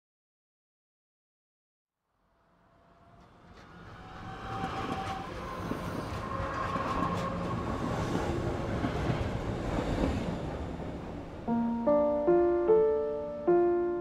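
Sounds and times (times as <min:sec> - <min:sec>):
train rumbling on rails: 0:02.8 - 0:11.7.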